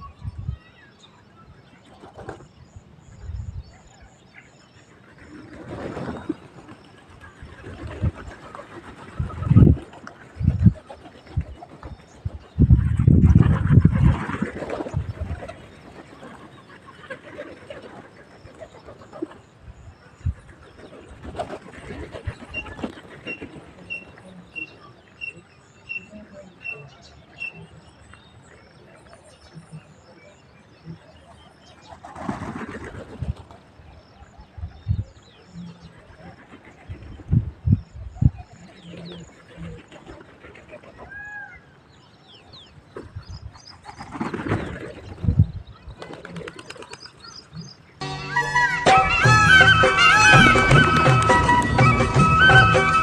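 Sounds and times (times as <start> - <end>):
small birds chirping: 40.9 - 48.0.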